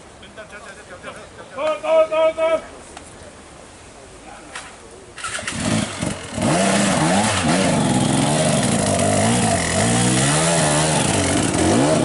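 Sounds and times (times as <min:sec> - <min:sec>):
dirt bike engine revving: 0:05.2 - 0:12.0.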